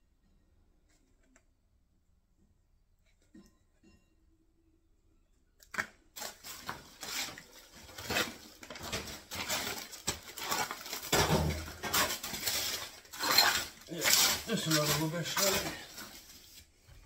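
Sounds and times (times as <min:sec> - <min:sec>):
debris rustling and clattering: 0:05.8 - 0:16.7.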